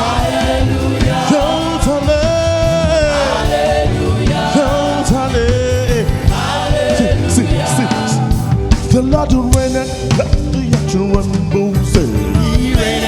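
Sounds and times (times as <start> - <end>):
choir singing: 0.0 - 9.1, 12.1 - 13.0
gospel band playing: 0.0 - 13.0.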